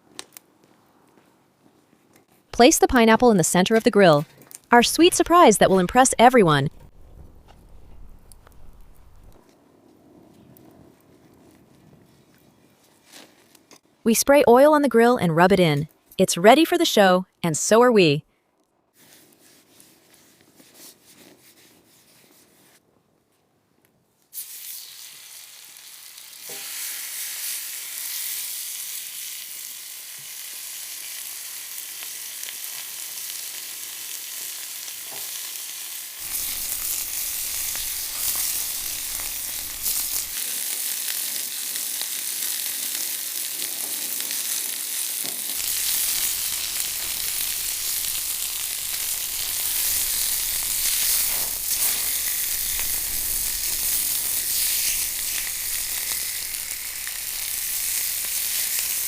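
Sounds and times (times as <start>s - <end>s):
food sizzling on grill: 24.4s - 59.0s.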